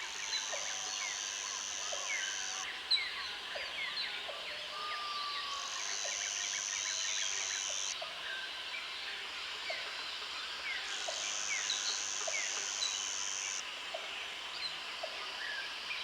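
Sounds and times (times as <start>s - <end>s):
high insect buzz: 5.7s - 8.0s, 11.3s - 13.6s.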